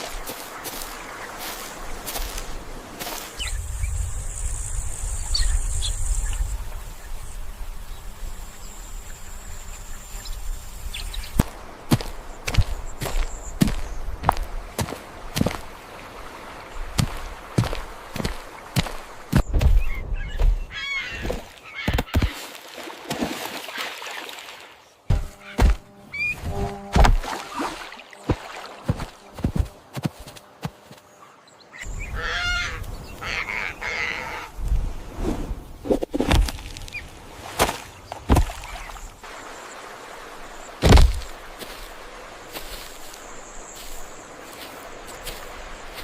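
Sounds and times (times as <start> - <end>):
honking animal calls: 32.0 - 34.5.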